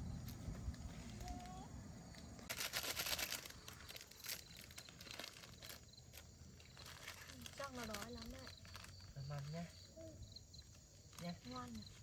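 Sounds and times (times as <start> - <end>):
plastic packet crinkling: 2.4 - 9.6.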